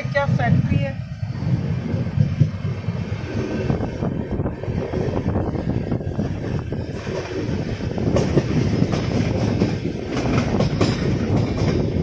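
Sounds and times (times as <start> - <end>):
train coach rumbling: 0.0 - 12.0
wheels clicking over rail joints: 6.9 - 12.0.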